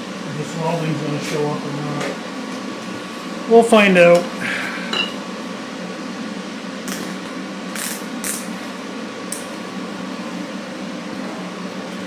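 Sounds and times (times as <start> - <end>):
welder humming: 0.0 - 12.0.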